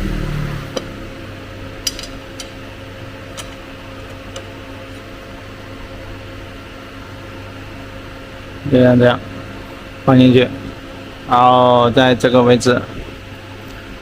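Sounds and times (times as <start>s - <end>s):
electrical hum: 0.0s - 14.0s
metal part clicking into fixture: 1.8s - 2.6s, 3.3s - 3.6s.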